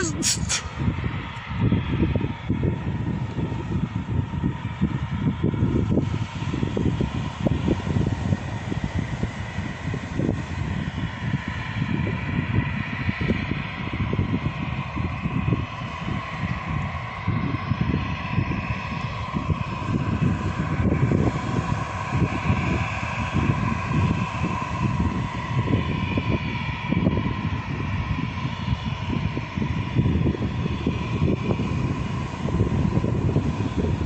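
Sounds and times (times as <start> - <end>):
deep fluttering rumble: 0.0 - 34.0
jet engines whining: 0.0 - 34.0.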